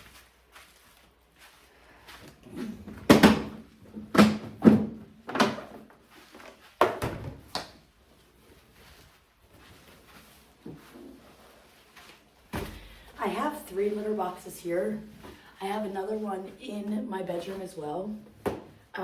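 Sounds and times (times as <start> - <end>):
plastic boxes knocking and scraping: 2.8 - 7.7.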